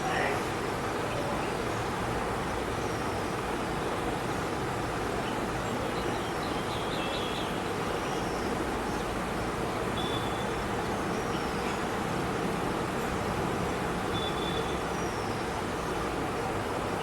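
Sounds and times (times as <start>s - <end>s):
small birds chirping: 5.2s - 9.2s.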